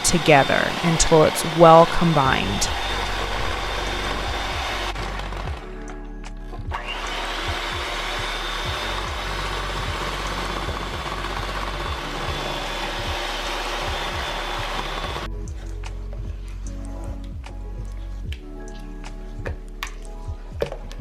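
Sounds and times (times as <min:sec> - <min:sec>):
electric hand mixer whirring: 0:00.0 - 0:05.6, 0:06.8 - 0:15.3.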